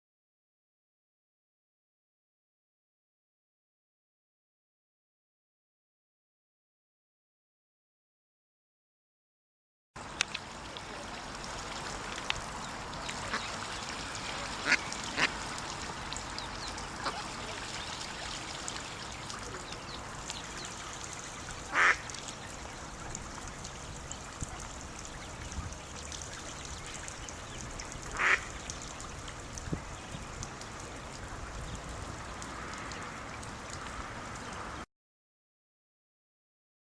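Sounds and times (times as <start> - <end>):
ducks quacking: 12.9 - 18.3, 21.7 - 22.1, 28.1 - 28.5.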